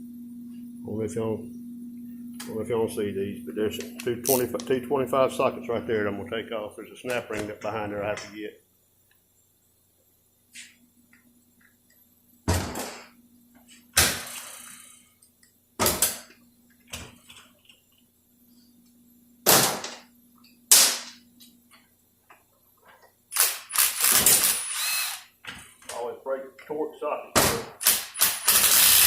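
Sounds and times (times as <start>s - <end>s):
pneumatic impact wrench bursts: 23.3s - 25.3s, 27.6s - 29.0s.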